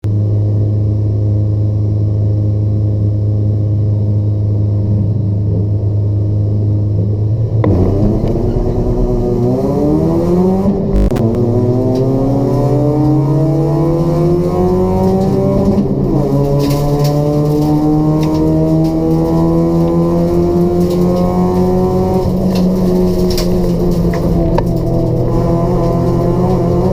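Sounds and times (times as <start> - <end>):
car engine accelerating: 4.9 - 26.9.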